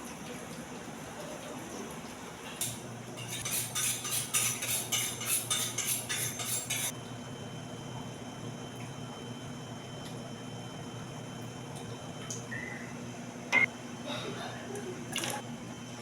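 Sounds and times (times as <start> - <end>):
cutlery and dishes clattering: 2.6 - 6.9.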